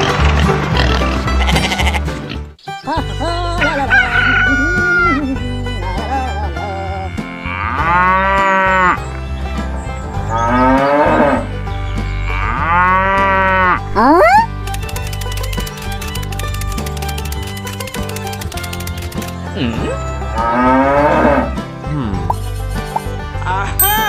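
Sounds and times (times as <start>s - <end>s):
background music: 0.0s - 24.0s
cattle mooing: 7.0s - 9.0s, 10.3s - 14.4s, 20.4s - 21.6s.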